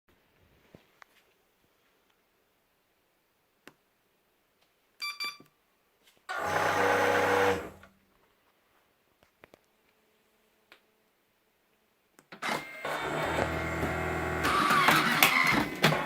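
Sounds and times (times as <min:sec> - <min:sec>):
short machine beeps: 0:05.0 - 0:05.4
machine motor running: 0:06.3 - 0:07.8, 0:12.6 - 0:16.0.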